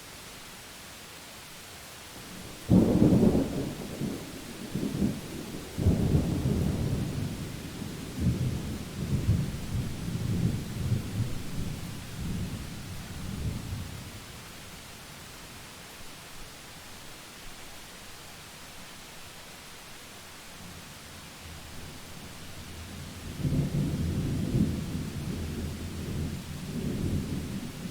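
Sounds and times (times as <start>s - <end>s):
thunder clap and rumble: 23.3s - 27.9s.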